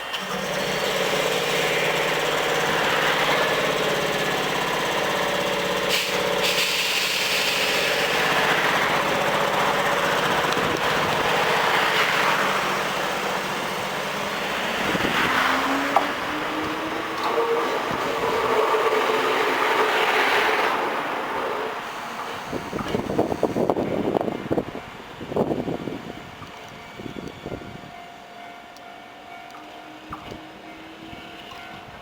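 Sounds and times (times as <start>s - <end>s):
traction motor whine: 0.0s - 23.8s
train equipment hum: 0.0s - 32.0s.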